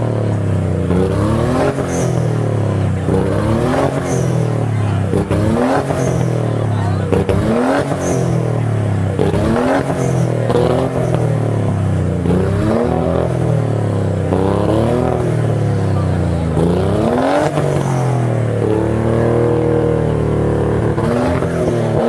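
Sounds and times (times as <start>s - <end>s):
car engine revving hard: 0.0s - 22.0s.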